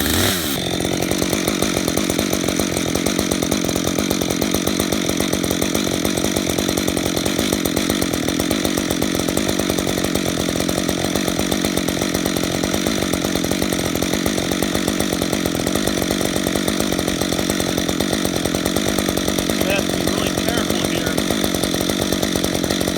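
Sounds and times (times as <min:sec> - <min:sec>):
chainsaw cutting wood: 0:00.0 - 0:22.9.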